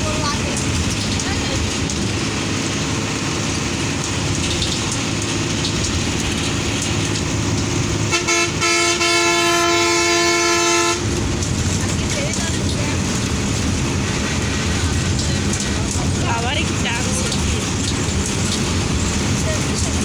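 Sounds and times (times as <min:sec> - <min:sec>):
coach engine and road rumble: 0:00.0 - 0:20.0
horn toots and blast: 0:08.0 - 0:11.2.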